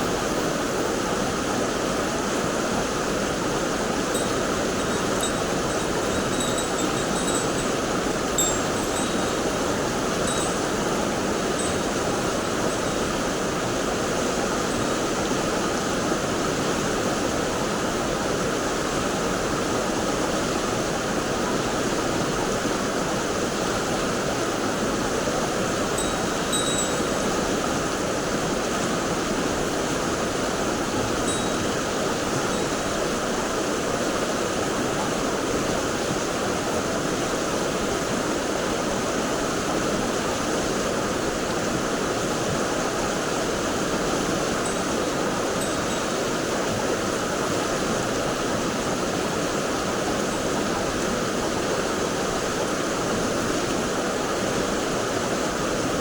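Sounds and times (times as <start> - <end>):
stream water rushing: 0.0 - 21.8.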